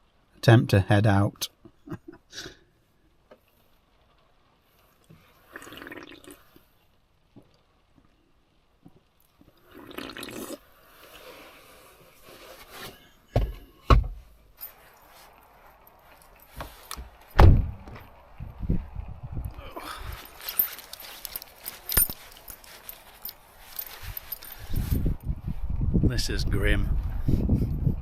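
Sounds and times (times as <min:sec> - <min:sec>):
liquid bursts while drinking: 0:05.4 - 0:06.6, 0:09.6 - 0:11.2
heavy thumps: 0:13.3 - 0:14.3, 0:16.5 - 0:18.1.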